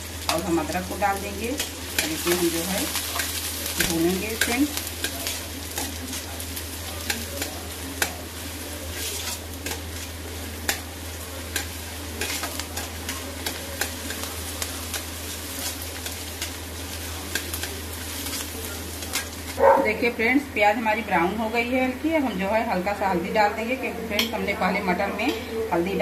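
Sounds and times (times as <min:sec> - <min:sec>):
vegetables sizzling in hot oil: 0:00.0 - 0:26.0
spatula clicking and scraping pan: 0:00.2 - 0:19.6.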